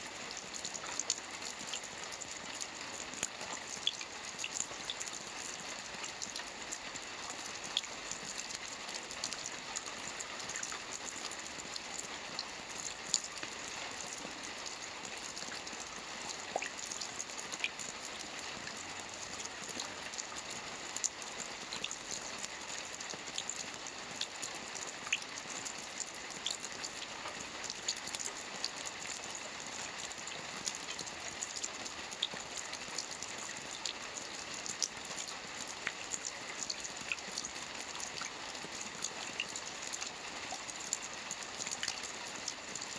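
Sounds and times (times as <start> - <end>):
rain on a roof: 0.0 - 42.9.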